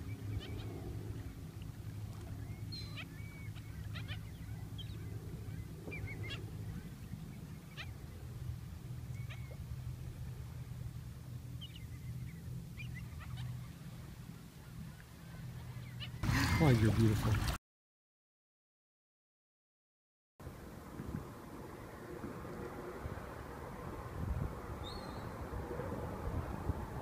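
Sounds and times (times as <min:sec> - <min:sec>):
birds chirping and honking: 0:00.0 - 0:08.2, 0:11.5 - 0:16.8
steady low hum: 0:00.0 - 0:17.5.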